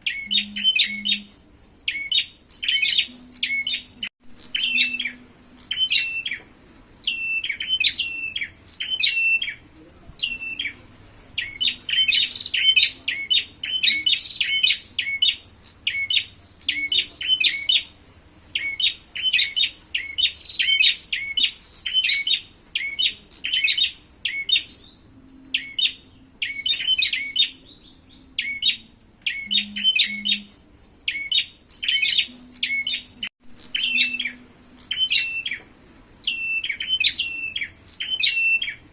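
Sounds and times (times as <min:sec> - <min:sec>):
birds chirping agitatedly: 0:00.0 - 0:38.9.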